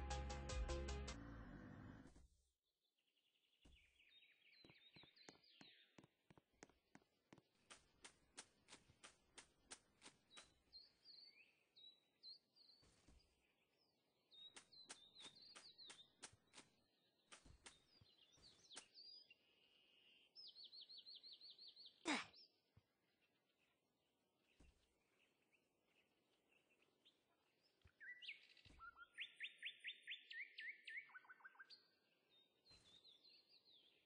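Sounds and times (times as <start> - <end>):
faint bird chirps: 24.4 - 34.0.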